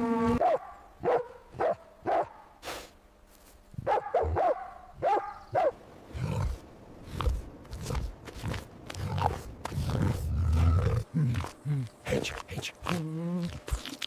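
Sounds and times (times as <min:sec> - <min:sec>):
dog barking and yapping: 0:00.4 - 0:02.4, 0:03.8 - 0:05.8.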